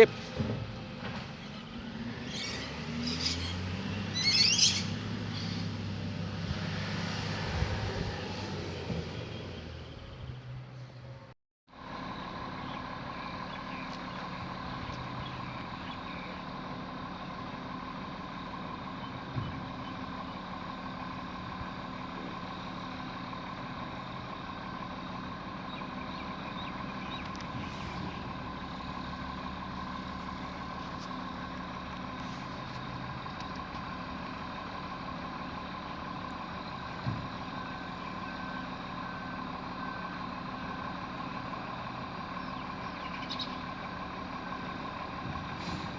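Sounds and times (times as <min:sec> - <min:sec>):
garbage truck engine running: 0:11.7 - 0:45.9.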